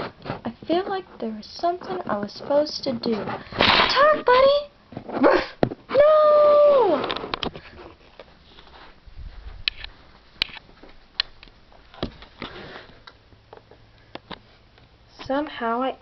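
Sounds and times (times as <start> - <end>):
soft rustles: 0.0 - 3.6, 6.9 - 13.0.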